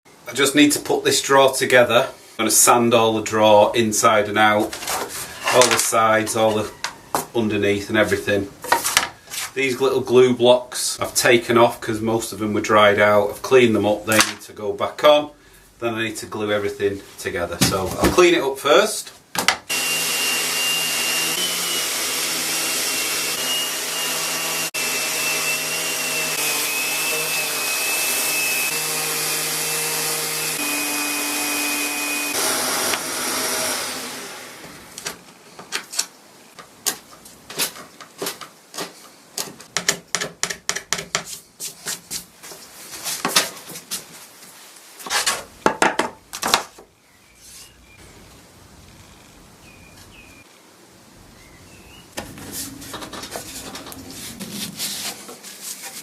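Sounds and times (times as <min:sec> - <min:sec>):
power tool motor whining: 0:19.7 - 0:35.0.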